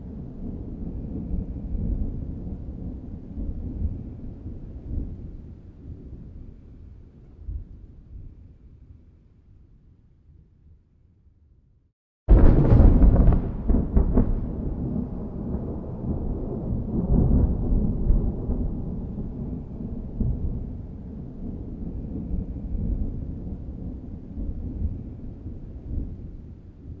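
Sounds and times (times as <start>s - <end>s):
thunder cracks and rumble: 0.0s - 6.7s, 12.3s - 27.0s.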